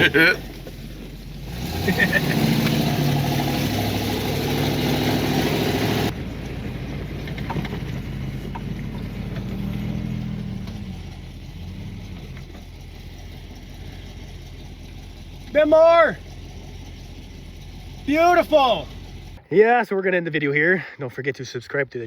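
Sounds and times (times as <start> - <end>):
vehicle engine running: 0.0 - 19.4.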